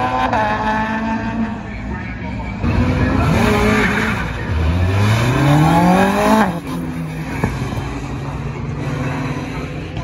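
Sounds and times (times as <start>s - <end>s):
rally car engine accelerating: 0.0s - 10.0s.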